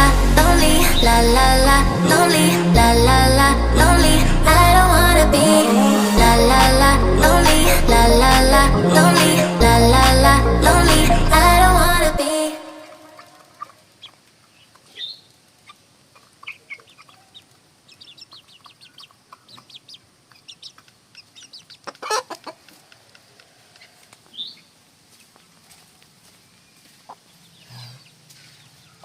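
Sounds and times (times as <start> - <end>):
chickens clucking: 13.1 - 15.0, 15.6 - 24.5.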